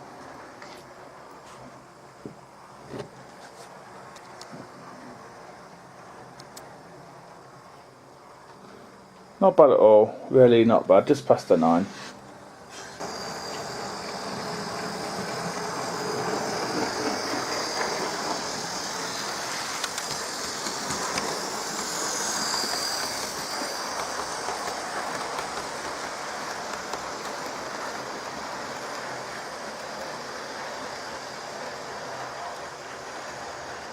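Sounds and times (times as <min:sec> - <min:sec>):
model train motor whine: 0:12.6 - 0:33.9
wheels clicking over rail joints: 0:12.8 - 0:33.9.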